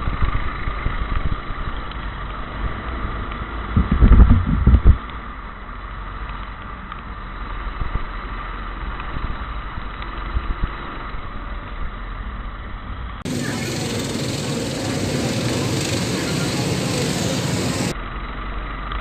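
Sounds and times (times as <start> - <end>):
go-kart engine running: 0.0 - 19.0
wind buffeting microphone: 3.7 - 5.2.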